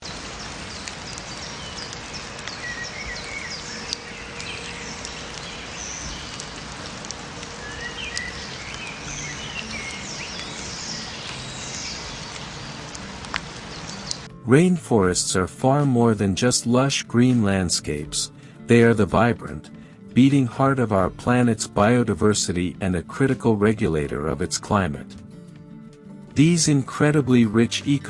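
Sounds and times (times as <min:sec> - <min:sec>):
background hiss: 0:00.0 - 0:28.0
birds chirping and calling: 0:00.7 - 0:14.3.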